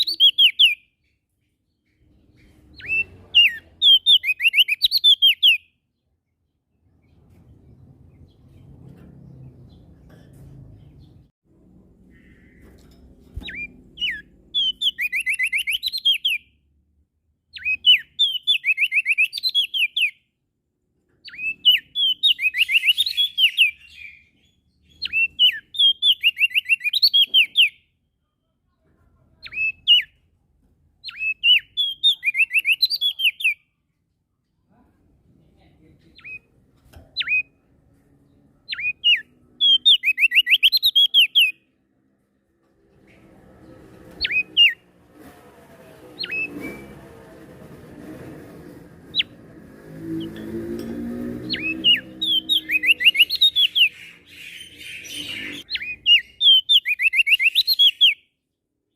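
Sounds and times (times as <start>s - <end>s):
bird singing whistled notes: 0.0s - 1.0s, 2.8s - 5.8s, 13.5s - 16.5s, 17.5s - 20.2s, 21.2s - 27.8s, 31.0s - 33.6s, 38.7s - 41.6s, 44.2s - 44.8s, 51.4s - 58.3s.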